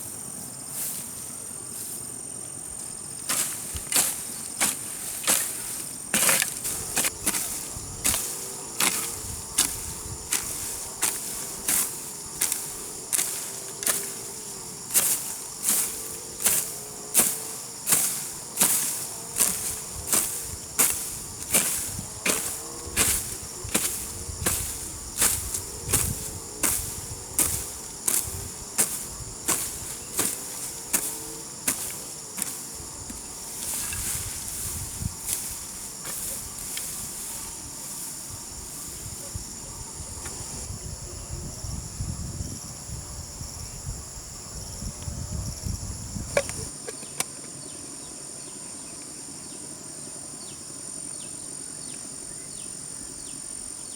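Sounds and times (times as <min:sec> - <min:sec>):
insects buzzing: 0:00.0 - 0:53.9
soft low thuds and rustling: 0:02.8 - 0:40.7
hoe chopping into soil: 0:03.2 - 0:39.2.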